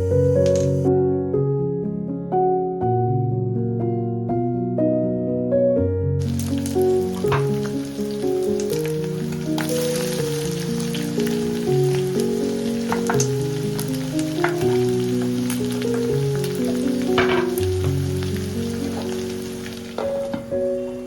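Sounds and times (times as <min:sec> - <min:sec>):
food sizzling in a pan: 0:00.0 - 0:00.9, 0:06.2 - 0:21.0
soft melodic background music: 0:00.0 - 0:21.0.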